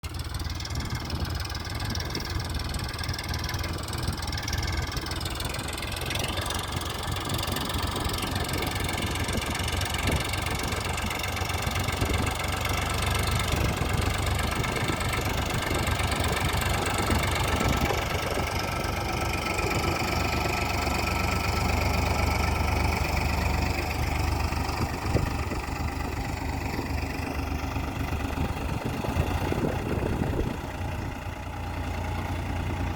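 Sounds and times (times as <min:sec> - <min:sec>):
tractor diesel engine running: 0:00.0 - 0:32.9.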